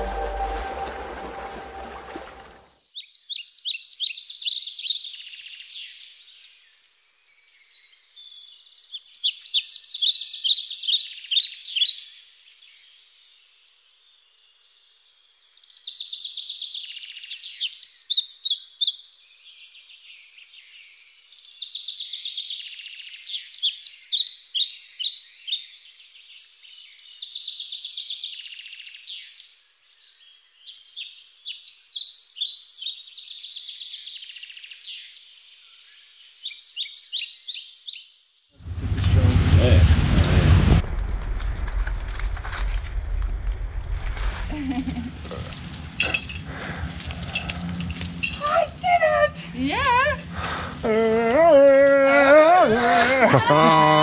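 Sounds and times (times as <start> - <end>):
birds chirping: 44.5 - 54.0.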